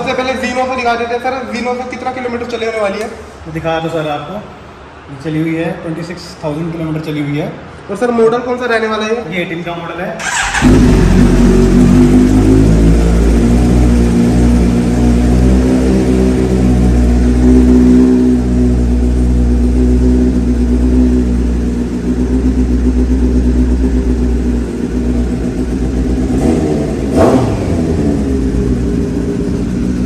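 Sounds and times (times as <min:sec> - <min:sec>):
engine revving burst: 0:10.2 - 0:30.0
motorcycle engine idling: 0:10.2 - 0:30.0.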